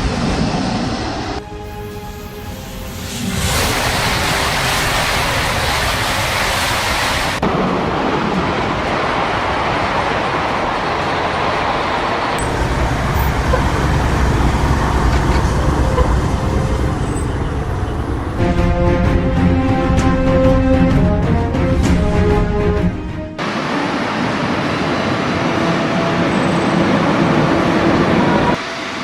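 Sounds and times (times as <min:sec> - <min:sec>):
train rushing at speed: 0:00.0 - 0:29.0.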